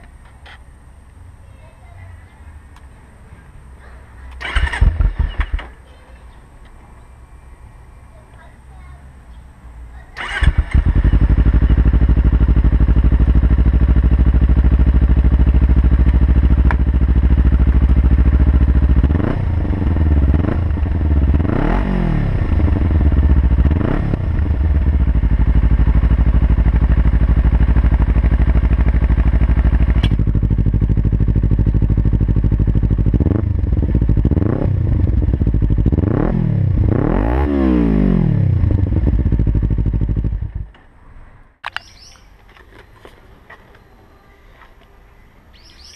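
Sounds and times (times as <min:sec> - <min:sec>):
motorcycle throttle blips: 0:04.3 - 0:05.8, 0:10.2 - 0:37.4
motorcycle engine idling: 0:10.2 - 0:21.6, 0:22.3 - 0:37.0, 0:38.5 - 0:40.7.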